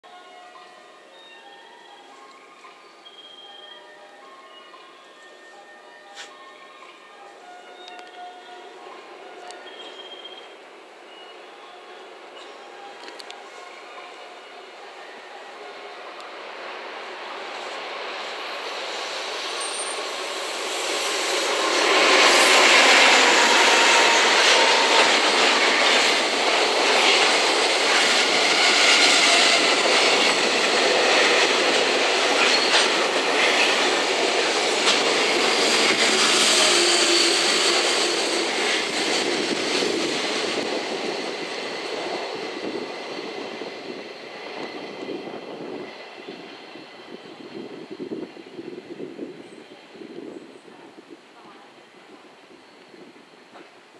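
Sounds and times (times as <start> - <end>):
train wheels clattering on rails: 17.5 - 46.6
high-pitched wheel squeals: 36.5 - 39.3.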